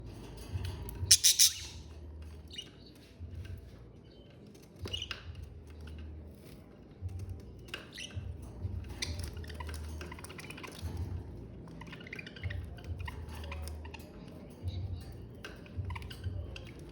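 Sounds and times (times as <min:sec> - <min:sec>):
budgerigars chirping: 0:01.0 - 0:01.9.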